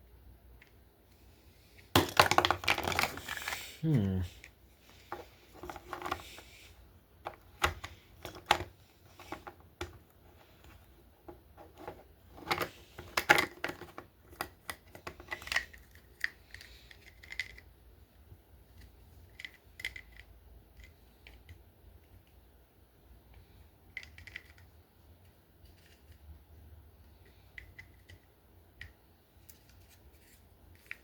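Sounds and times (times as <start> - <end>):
toy packaging clicks and taps: 7.2 - 10.0, 11.3 - 17.7, 18.8 - 22.4, 23.9 - 24.7, 30.7 - 31.0.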